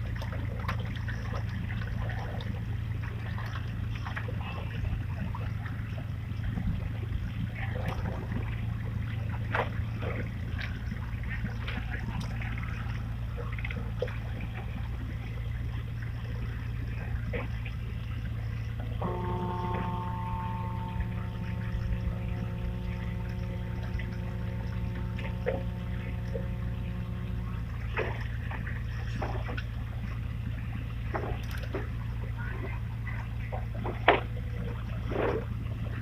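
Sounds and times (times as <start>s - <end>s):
low motor hum: 0.0s - 36.0s
water sounds: 0.0s - 36.0s.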